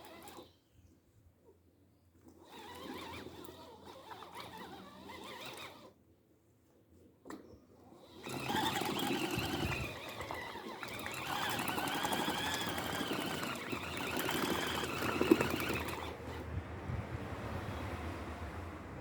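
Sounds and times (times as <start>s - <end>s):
water and clothes churning: 8.2s - 16.4s
washing machine motor whining: 8.2s - 17.3s.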